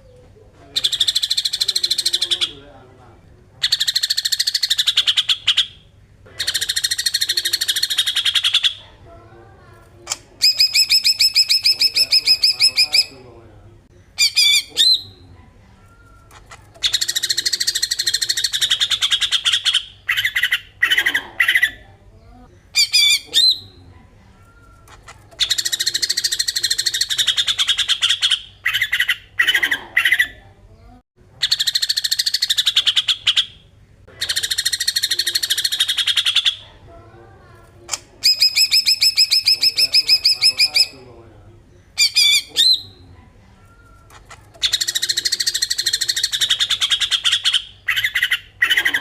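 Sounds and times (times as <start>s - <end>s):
bird chirping phrases: 0.0s - 49.0s.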